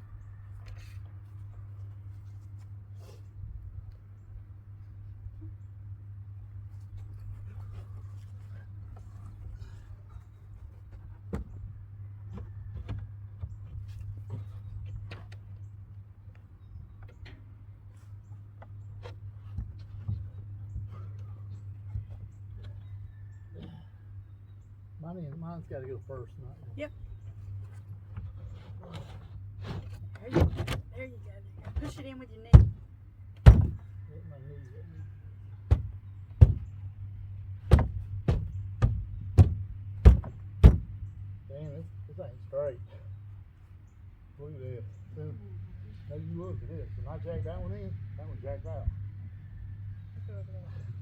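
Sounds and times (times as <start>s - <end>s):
steady low hum: 0.0s - 51.0s
wood rubbing on wood: 27.5s - 30.6s
wooden panels knocking: 33.4s - 33.9s, 35.7s - 36.8s, 37.6s - 41.1s.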